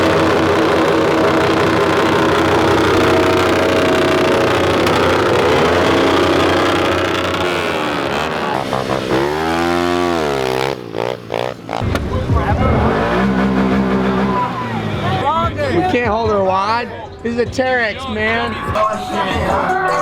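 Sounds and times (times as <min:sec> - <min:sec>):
engine revving: 0:00.0 - 0:15.5
pit bike engines running: 0:00.0 - 0:18.9.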